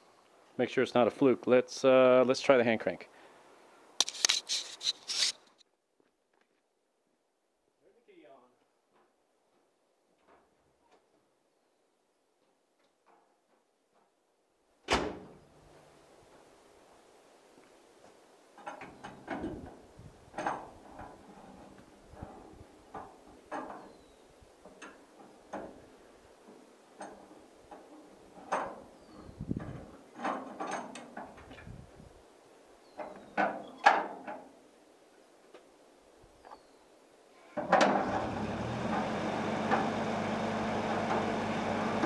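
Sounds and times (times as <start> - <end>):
knocks and clunks: 18.6 - 23.9.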